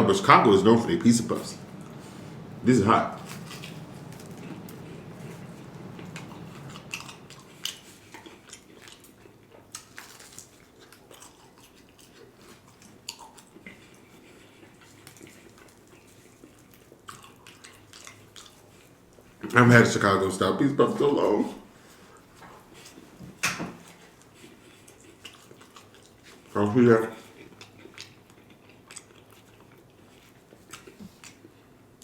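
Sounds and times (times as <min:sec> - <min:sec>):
person chewing fried food: 0:00.1 - 0:19.5, 0:21.7 - 0:32.0
wet mouth clicks and smacks: 0:03.3 - 0:09.2.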